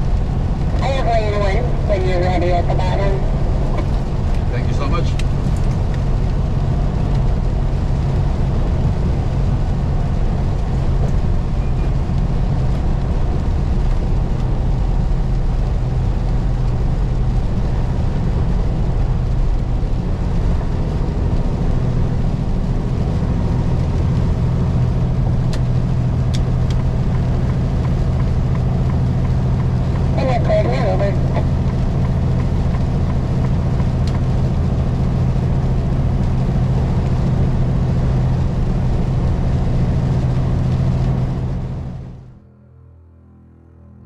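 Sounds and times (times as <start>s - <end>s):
road noise: 0.0s - 42.6s
diesel truck engine droning: 0.0s - 44.0s.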